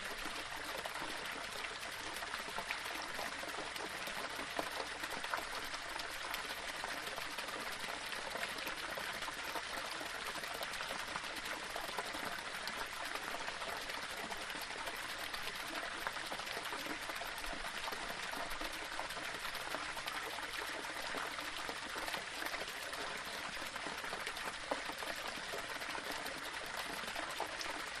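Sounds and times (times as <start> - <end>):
waterfall splashing over stones: 0.0 - 28.0.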